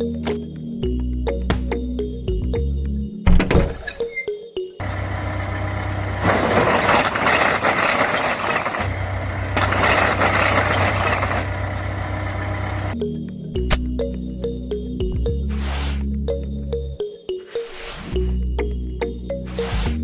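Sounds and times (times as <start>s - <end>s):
engine running with deep hum: 4.8s - 13.0s.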